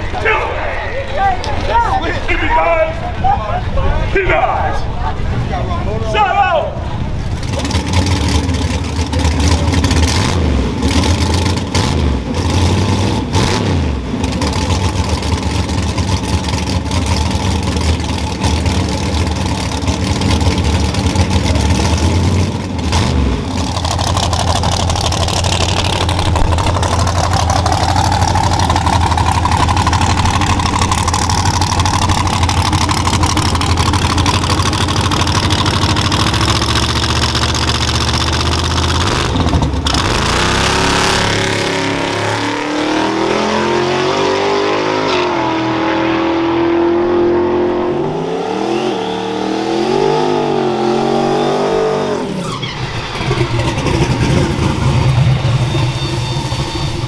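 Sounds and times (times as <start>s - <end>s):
car engine lumpy idle: 6.8s - 10.1s, 14.1s - 40.0s, 52.4s - 57.0s
engine whine rising and falling: 6.9s - 57.0s.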